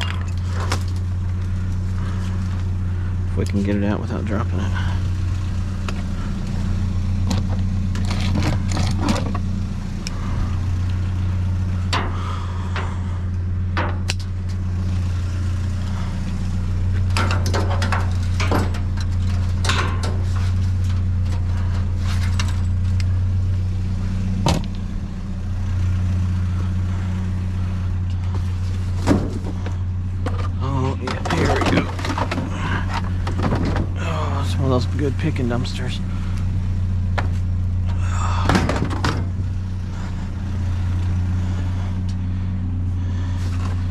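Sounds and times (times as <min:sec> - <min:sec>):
vehicle engine idling: 0:00.0 - 0:43.9
junk shifted in a dumpster: 0:28.4 - 0:34.8.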